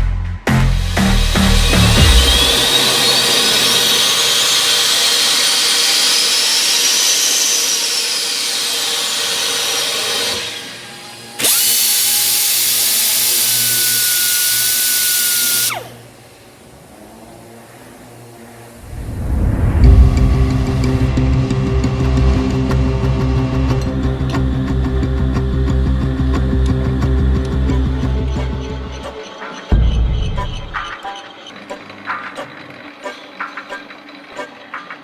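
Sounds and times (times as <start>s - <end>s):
power tool whirring: 0.7s - 19.1s.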